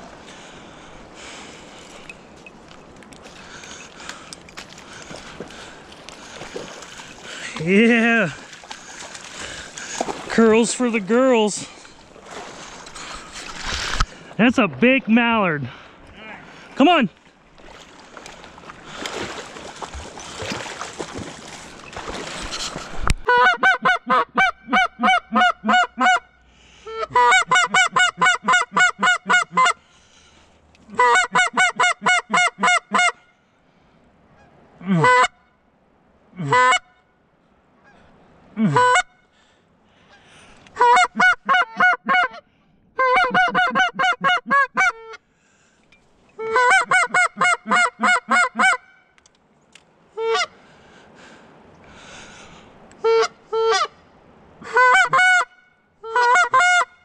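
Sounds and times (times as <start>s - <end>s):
waterfowl honking: 22.5s - 26.3s, 26.9s - 29.8s, 30.9s - 33.3s, 34.4s - 35.5s, 36.5s - 37.0s, 40.1s - 45.2s, 46.4s - 49.2s, 50.2s - 50.6s, 53.0s - 54.0s, 54.6s - 57.0s.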